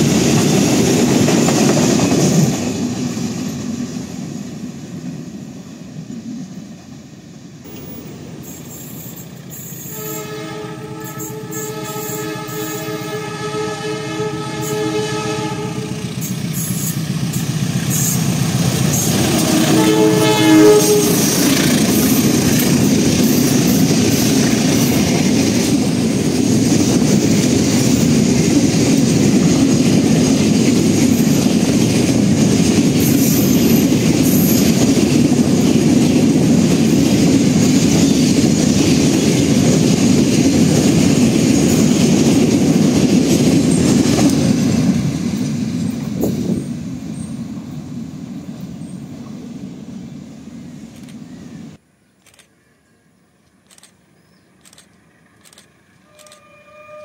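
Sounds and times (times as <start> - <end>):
train rumble and clickety-clack: 0.0 - 52.5, 53.6 - 57.0
train air horn: 8.4 - 16.9, 18.9 - 22.2, 56.0 - 57.0.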